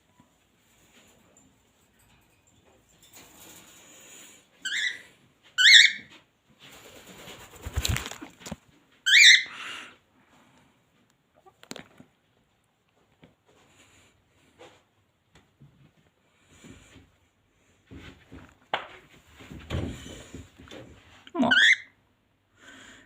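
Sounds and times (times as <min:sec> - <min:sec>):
rustling noise: 0:00.2 - 0:09.0, 0:15.6 - 0:21.2.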